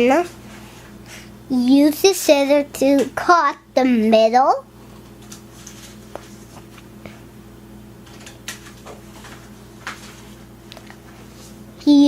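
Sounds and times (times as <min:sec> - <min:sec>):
steady low hum: 0:00.0 - 0:12.0
paper rustling: 0:05.2 - 0:06.9.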